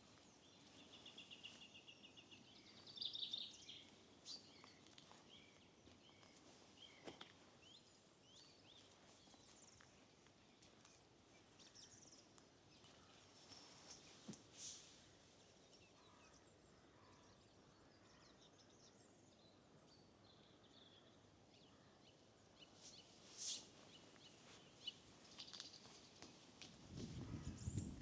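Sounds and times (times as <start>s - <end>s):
songbirds singing: 0.0s - 14.5s, 15.3s - 28.0s
faint background hiss: 0.0s - 17.9s, 18.8s - 28.0s.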